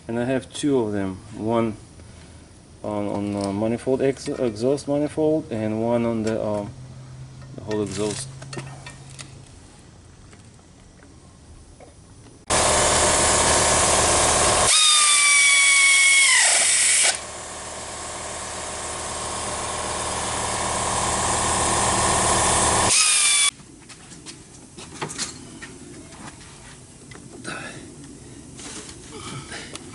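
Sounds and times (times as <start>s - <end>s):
power tool whining: 12.5s - 23.5s.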